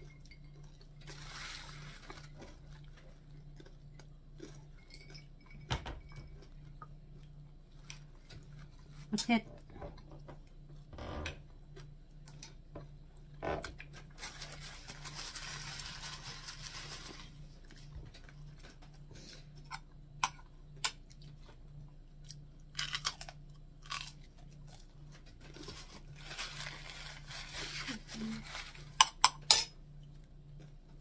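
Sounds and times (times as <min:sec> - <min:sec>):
chewing and crunching: 0:00.0 - 0:31.0.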